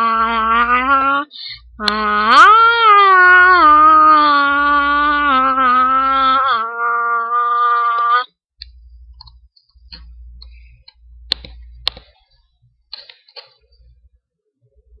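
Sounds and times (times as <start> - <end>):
low rumble of handling: 8.6 - 12.8.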